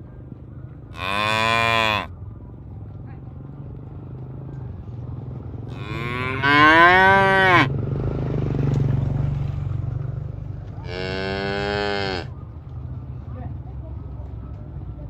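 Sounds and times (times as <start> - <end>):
cattle mooing: 1.0 - 2.1, 5.7 - 7.7, 10.8 - 12.3.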